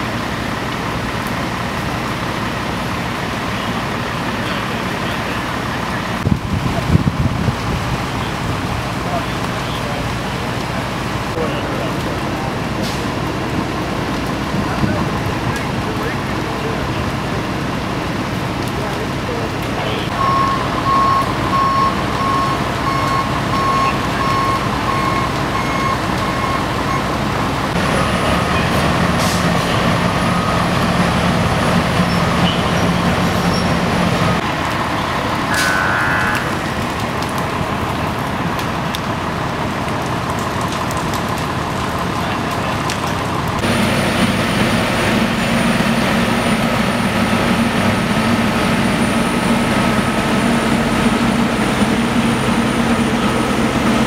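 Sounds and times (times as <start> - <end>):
diesel engines running: 0.0 - 54.0
truck reversing beeper: 19.9 - 34.4, 35.4 - 36.7.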